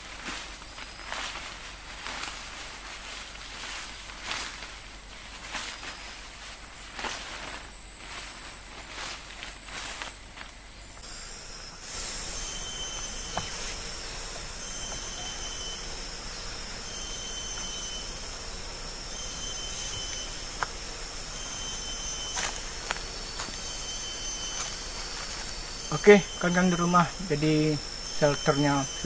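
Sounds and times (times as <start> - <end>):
insect chorus hiss: 4.5 - 29.0
short high calls: 11.0 - 29.0.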